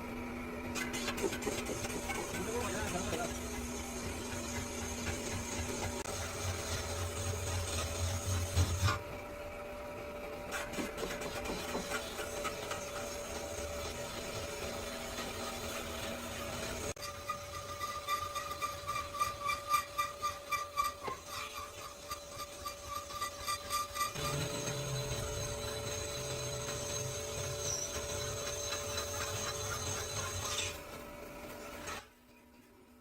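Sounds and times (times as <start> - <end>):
steady machine hum: 0.0 - 10.5, 21.6 - 31.9
tool running steadily: 0.0 - 32.1.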